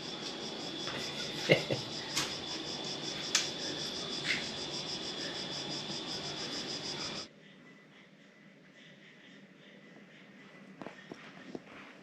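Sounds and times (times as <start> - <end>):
insect chorus chirring: 0.0 - 7.3.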